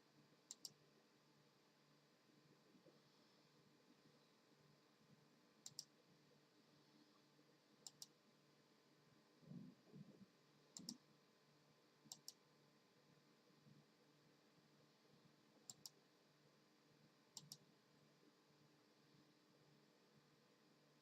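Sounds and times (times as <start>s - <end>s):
faint sharp clicks: 0.5s - 0.8s, 5.6s - 6.0s, 7.8s - 8.2s, 10.7s - 11.0s, 12.1s - 12.4s, 15.6s - 16.0s, 17.3s - 17.7s.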